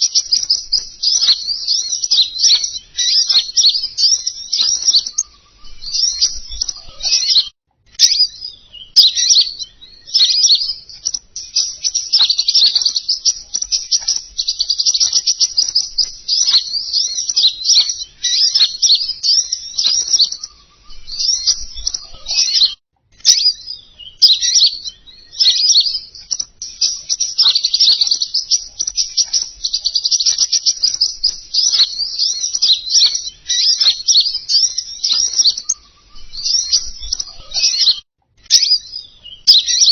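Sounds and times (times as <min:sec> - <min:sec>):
songbird chattering trills: 0:00.0 - 0:39.9.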